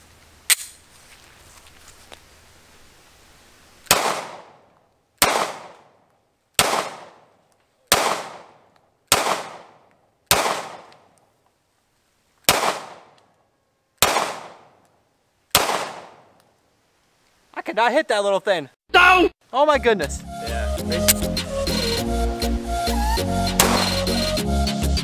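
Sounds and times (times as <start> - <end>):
pistol shots with echo: 3.9 - 4.6, 5.2 - 5.9, 6.6 - 7.3, 7.9 - 11.0, 12.5 - 13.1, 14.0 - 14.8, 15.6 - 16.3, 23.6 - 24.0.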